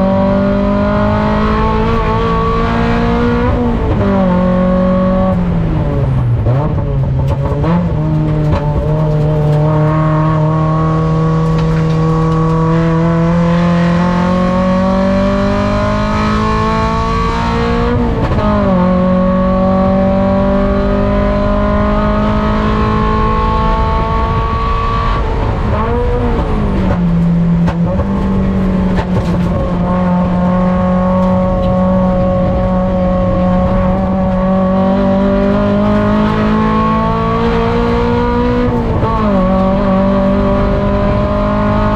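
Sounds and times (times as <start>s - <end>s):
race car engine accelerating: 0.0s - 41.9s.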